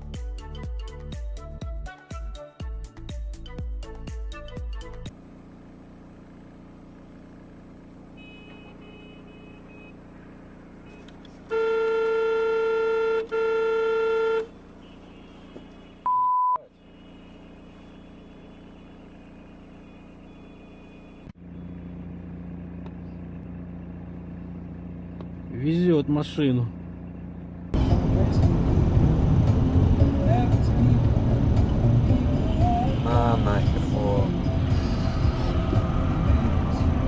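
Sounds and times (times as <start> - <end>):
engine hum inside cab: 4.8 - 37.0
vehicle horn blasts: 8.1 - 10.1, 10.9 - 21.3
short electronic beep: 16.0 - 16.7.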